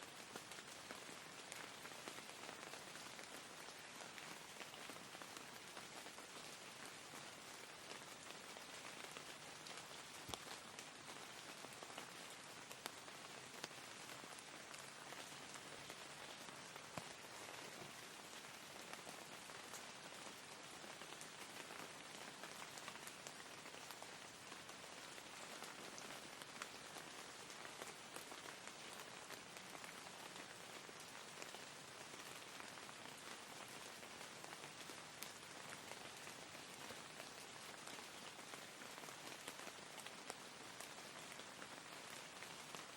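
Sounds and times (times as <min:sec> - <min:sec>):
soft rain falling: 0:00.0 - 0:42.9
raindrop ticks: 0:07.1 - 0:19.9.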